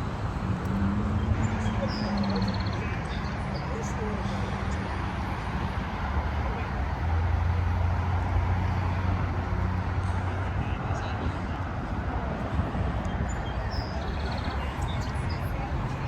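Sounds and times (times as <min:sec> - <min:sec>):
people talking: 0:01.4 - 0:07.0, 0:10.0 - 0:16.0.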